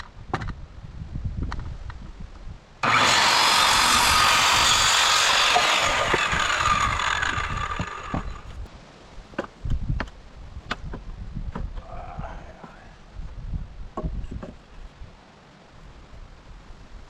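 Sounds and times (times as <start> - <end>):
power saw cutting wood: 2.8 - 8.6.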